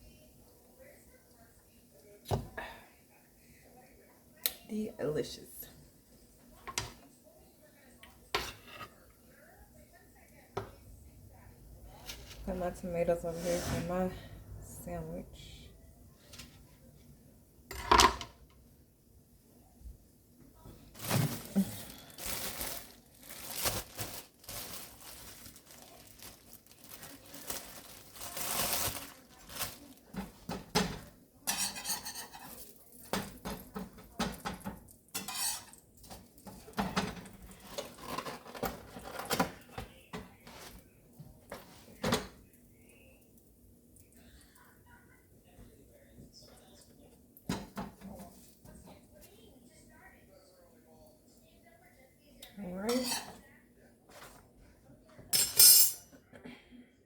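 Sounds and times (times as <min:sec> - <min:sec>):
dishes and utensils clinking: 0:17.7 - 0:18.4, 0:28.3 - 0:40.7, 0:52.9 - 0:53.4, 0:55.2 - 0:56.3.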